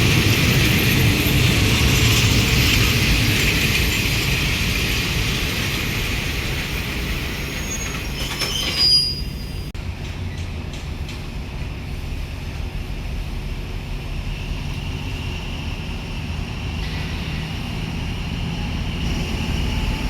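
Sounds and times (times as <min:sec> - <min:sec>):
train rumbling on rails: 0:00.0 - 0:20.0
high squeal: 0:07.4 - 0:09.7.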